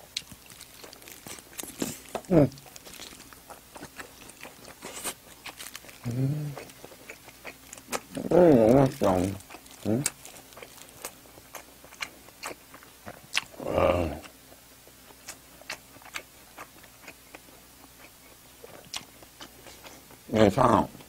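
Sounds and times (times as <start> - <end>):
person chewing food: 0.0 - 20.2
short hummed vocal sound: 2.3 - 2.6, 6.0 - 6.6, 8.1 - 10.2, 13.6 - 14.3.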